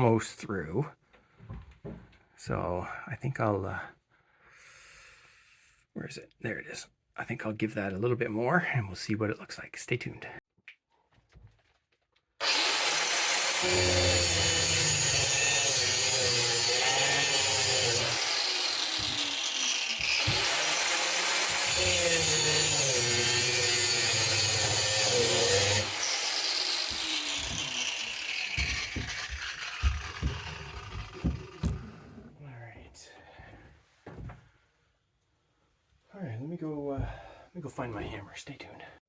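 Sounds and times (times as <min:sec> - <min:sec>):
grinder cutting steel: 0:12.4 - 0:31.9.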